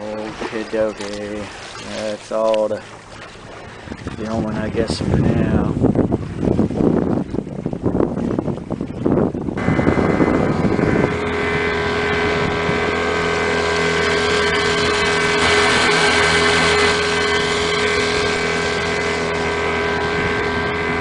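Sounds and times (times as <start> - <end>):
outboard motor humming: 0.0 - 21.0.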